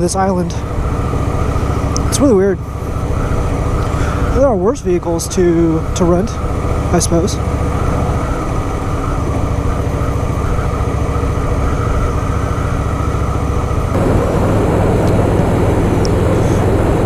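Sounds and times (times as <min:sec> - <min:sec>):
motorcycle engine running: 0:00.0 - 0:17.0
loud rushing noise: 0:06.5 - 0:17.0.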